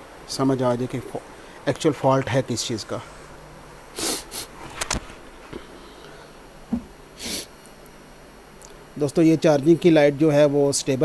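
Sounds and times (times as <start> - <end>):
short breathy hisses: 3.1 - 4.6, 7.2 - 7.6.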